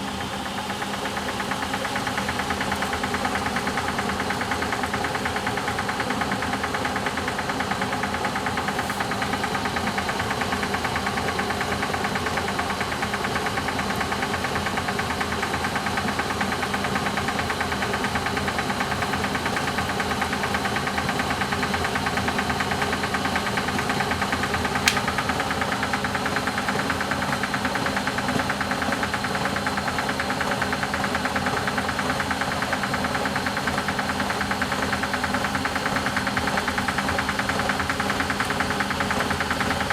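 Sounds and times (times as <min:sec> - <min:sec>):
washing machine spinning: 0:00.0 - 0:39.9
washing machine click: 0:24.8 - 0:25.2.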